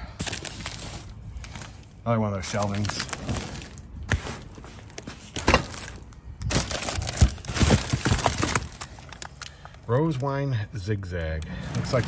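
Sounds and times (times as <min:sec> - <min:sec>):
plastic wrap crinkling: 0:00.2 - 0:09.8
cardboard boxes rubbing and knocking: 0:03.1 - 0:08.7.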